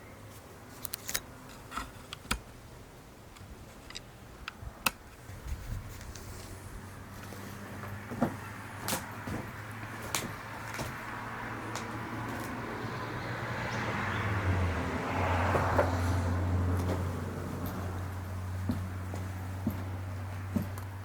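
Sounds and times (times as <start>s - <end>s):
footsteps and handling clicks: 0.7s - 2.4s, 7.2s - 11.0s, 18.6s - 20.9s.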